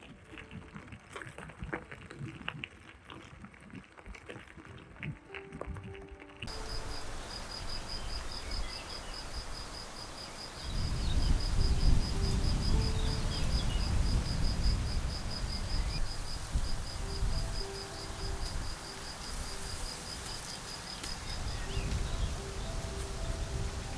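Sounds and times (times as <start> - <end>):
cricket chirping: 6.5 - 23.9
faint bird notes: 6.5 - 23.9.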